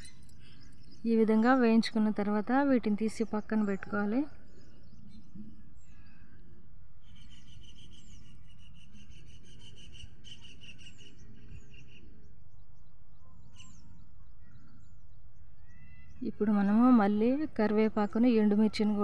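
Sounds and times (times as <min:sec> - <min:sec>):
small birds chirping: 0:00.0 - 0:06.4.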